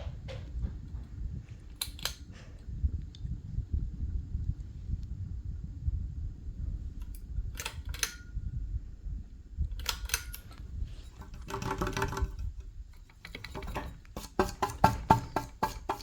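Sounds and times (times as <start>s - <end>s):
ceiling fan rumbling: 0.0s - 16.0s
sharp clicks: 9.8s - 10.6s.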